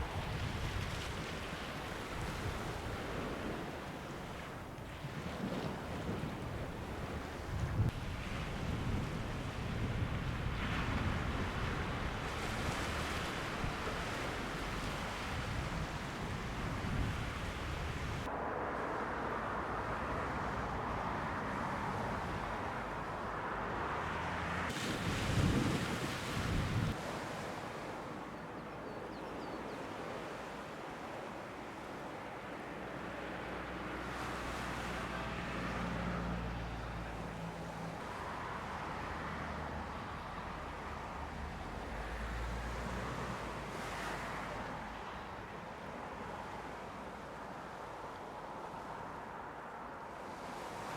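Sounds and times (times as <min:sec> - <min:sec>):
wind buffeting microphone: 0:00.0 - 0:27.4
sea waves washing on beach: 0:00.0 - 0:50.9
low engine hum: 0:17.8 - 0:24.8, 0:32.8 - 0:47.1.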